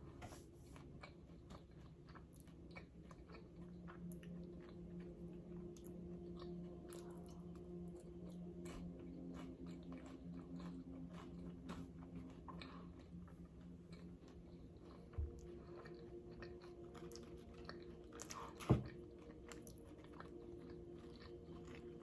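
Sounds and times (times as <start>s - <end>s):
low hum: 2.8s - 22.0s.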